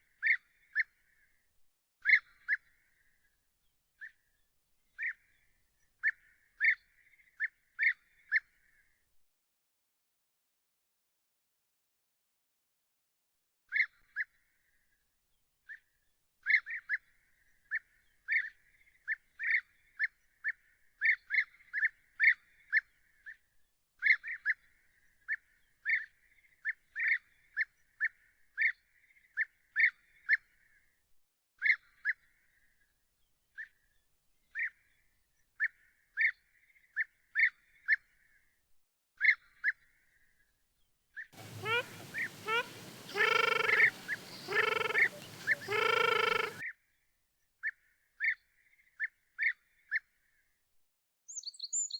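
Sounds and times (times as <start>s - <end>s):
bird calling in sharp high notes: 41.4s - 46.6s
other bird calls: 41.4s - 46.6s.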